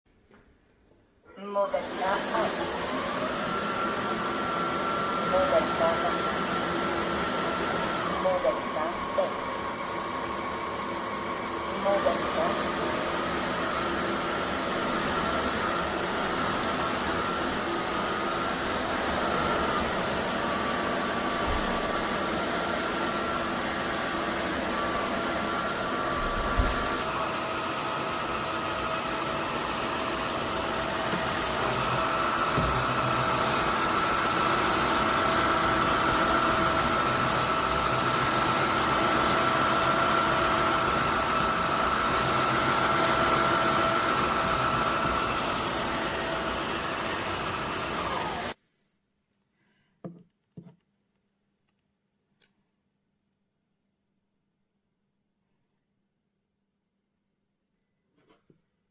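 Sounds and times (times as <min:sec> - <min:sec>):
vacuum motor whine and rushing air: 0:01.6 - 0:48.6
knock: 0:50.0 - 0:50.8.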